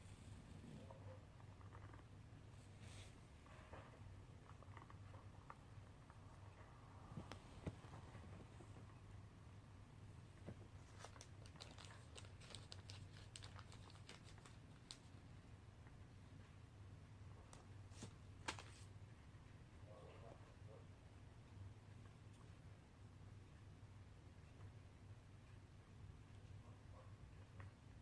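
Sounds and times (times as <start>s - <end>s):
soft rustle: 0.0s - 9.0s, 10.2s - 15.2s, 17.5s - 19.0s
low steady hum: 0.0s - 28.0s
faint clicks and crinkling: 0.5s - 2.7s, 3.4s - 9.2s, 10.2s - 16.6s, 24.3s - 28.0s.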